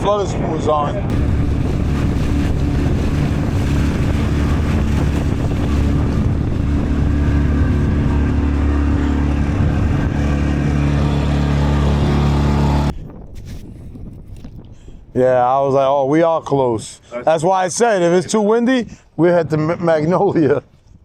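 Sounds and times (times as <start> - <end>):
boat outboard motor running: 1.1 - 12.9.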